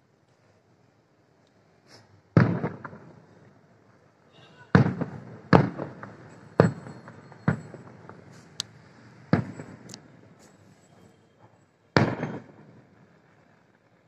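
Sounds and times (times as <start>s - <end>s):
firework shells bursting: 4.7s - 10.0s, 12.0s - 13.0s.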